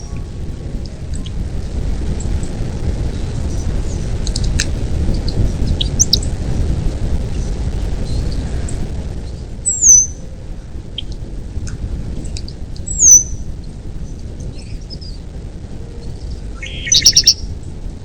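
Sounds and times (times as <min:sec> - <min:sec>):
steady low rumble: 0:00.0 - 0:18.0
bird chirps: 0:09.7 - 0:10.2, 0:16.2 - 0:17.5
bird whistled calls: 0:09.7 - 0:10.2, 0:12.9 - 0:13.4, 0:16.5 - 0:17.5.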